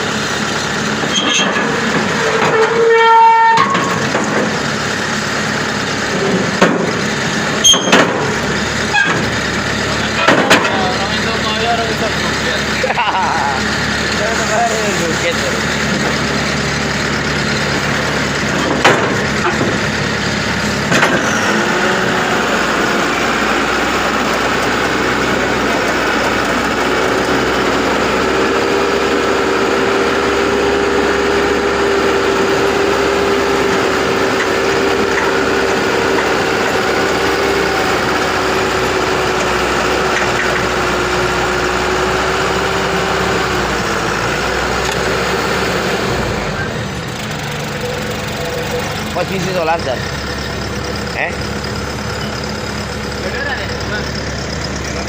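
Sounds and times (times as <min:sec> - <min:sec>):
combine harvester engine running: 0:00.0 - 0:55.0
sharp knocks: 0:07.8 - 0:08.4, 0:18.6 - 0:19.8.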